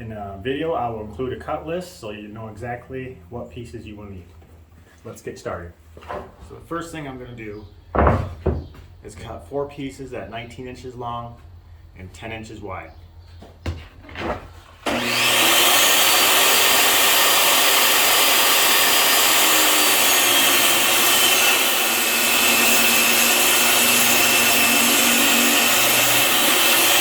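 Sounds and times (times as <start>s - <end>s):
power saw cutting wood: 14.8s - 27.0s.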